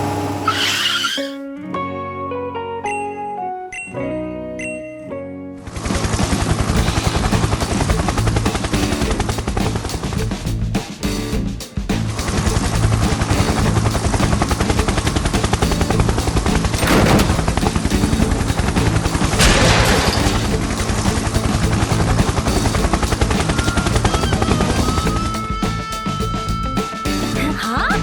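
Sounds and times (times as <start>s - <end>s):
fast rattle of rapid pulses: 5.8s - 10.5s, 12.2s - 27.3s.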